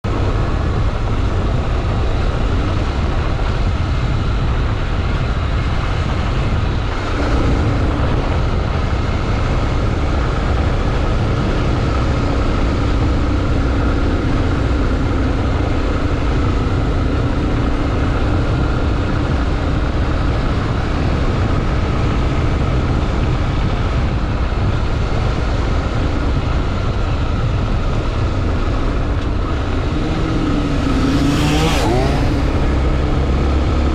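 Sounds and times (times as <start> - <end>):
motorcycle engine rumbling: 0.0 - 33.9.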